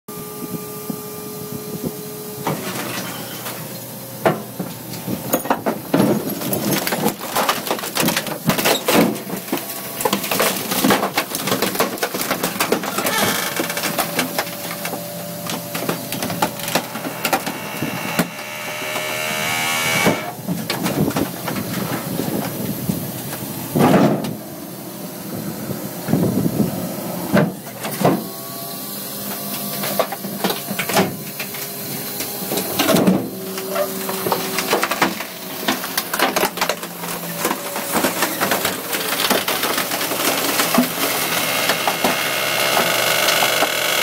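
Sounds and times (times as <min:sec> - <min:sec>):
compactor crushing dishwasher: 0:04.3 - 0:22.5, 0:29.6 - 0:44.0
cracks of breaking parts: 0:05.3 - 0:19.2, 0:29.8 - 0:44.0
motor whine: 0:12.9 - 0:20.6, 0:37.0 - 0:44.0.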